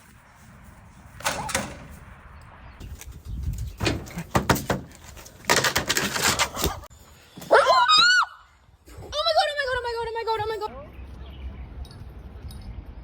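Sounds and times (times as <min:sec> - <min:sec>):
knocks and rattles: 0:03.3 - 0:06.9.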